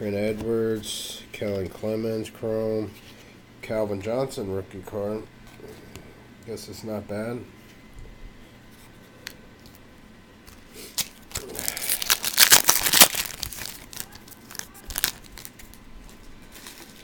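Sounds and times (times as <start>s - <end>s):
foil wrapper tearing and crinkling: 10.5s - 17.0s.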